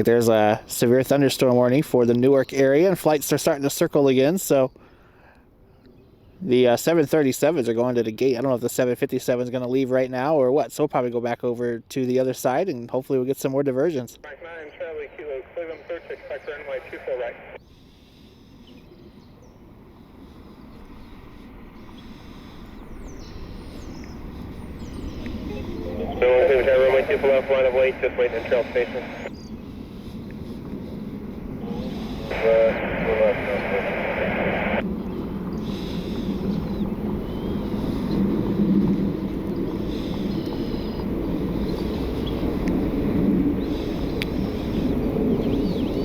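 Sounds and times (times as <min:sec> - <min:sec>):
radio transmission: 0:14.2 - 0:17.6, 0:25.4 - 0:29.4, 0:30.0 - 0:34.8
small birds chirping: 0:14.2 - 0:32.9, 0:34.9 - 0:38.3, 0:39.5 - 0:42.7, 0:43.6 - 0:46.0
distant jet aircraft rumble: 0:14.2 - 0:46.0
faint chirps: 0:21.8 - 0:29.8.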